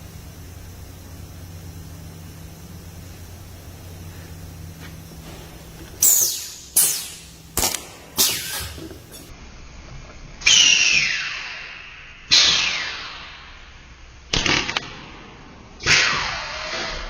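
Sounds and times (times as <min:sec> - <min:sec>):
spot welder cracking: 0:00.0 - 0:09.3.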